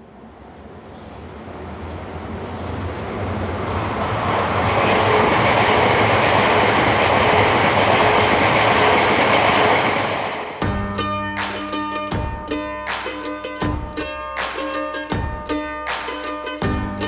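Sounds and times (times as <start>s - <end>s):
train passing: 0.0s - 17.0s
plucked-string music: 10.6s - 17.0s.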